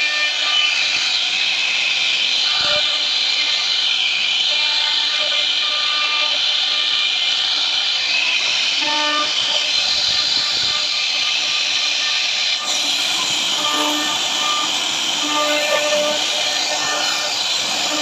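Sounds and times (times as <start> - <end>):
machine axis movement tones: 8.1 - 18.0
router spindle cutting wood: 12.1 - 18.0.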